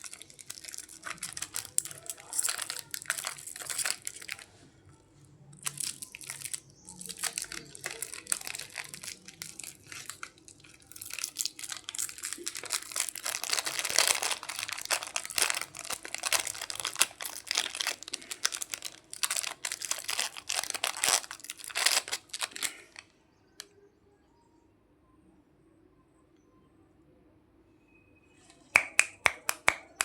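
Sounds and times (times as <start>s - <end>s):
plastic candy packaging crinkling: 0.0s - 23.1s.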